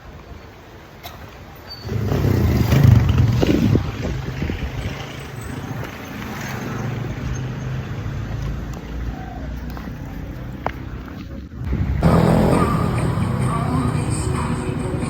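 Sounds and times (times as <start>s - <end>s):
vehicle engine running: 11.6s - 15.0s.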